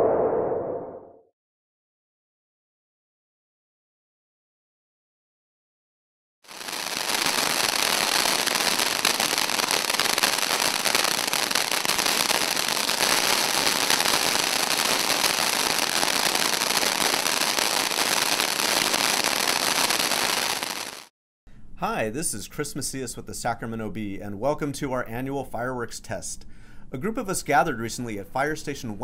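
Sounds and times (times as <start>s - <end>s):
firework fountain hissing crackle: 6.5s - 21.1s.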